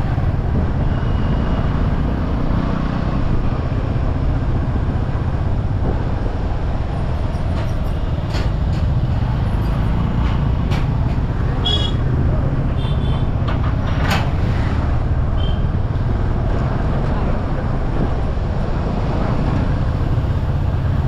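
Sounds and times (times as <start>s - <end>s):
wind: 0.0s - 21.0s.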